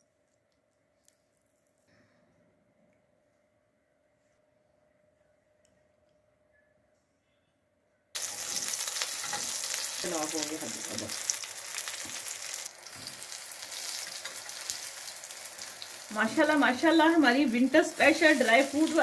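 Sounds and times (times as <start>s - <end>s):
food sizzling in oil: 8.2s - 19.0s.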